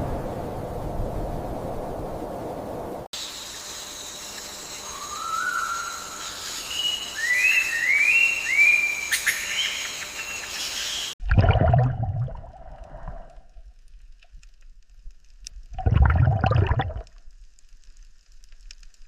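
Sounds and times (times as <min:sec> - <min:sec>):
steady hiss: 0:00.0 - 0:11.2
bird whistling upward calls: 0:04.8 - 0:06.1, 0:06.7 - 0:11.1
low watery rumble: 0:11.2 - 0:19.0.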